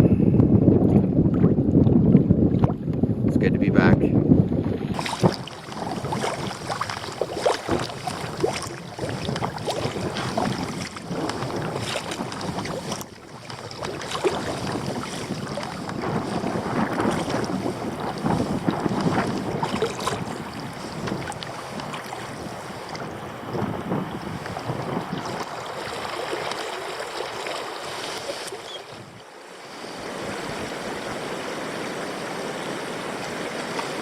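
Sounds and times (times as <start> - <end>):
water lapping against kayak: 0.0 - 3.3, 4.2 - 34.0
wind buffeting microphone: 0.0 - 26.6, 28.3 - 29.2.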